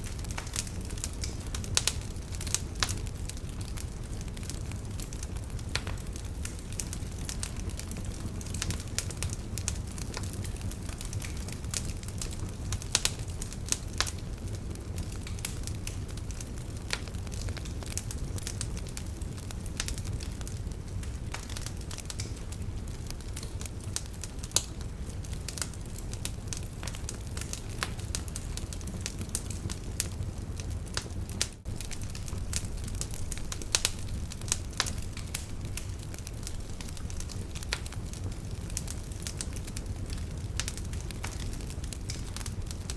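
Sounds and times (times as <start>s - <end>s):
logs crackling and popping in fire: 0.0s - 42.9s
low fire rumble: 0.0s - 42.9s.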